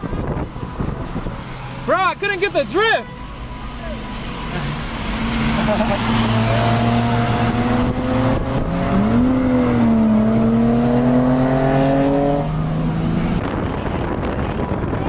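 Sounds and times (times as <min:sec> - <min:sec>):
car engine accelerating hard: 0:03.4 - 0:13.6.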